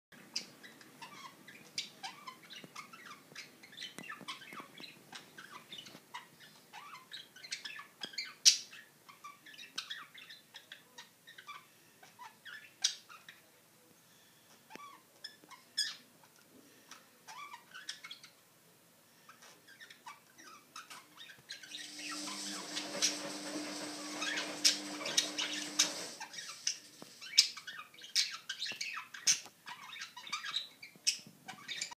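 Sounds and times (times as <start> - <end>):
steady noise with low hum: 21.6 - 27.6.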